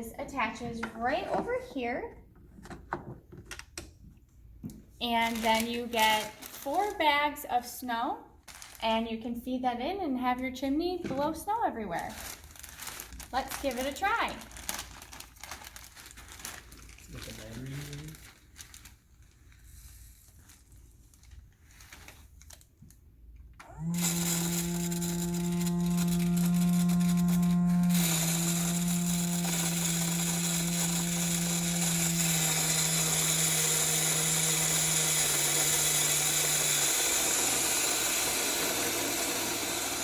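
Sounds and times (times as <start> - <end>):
small blower motor whirring: 23.6 - 40.0.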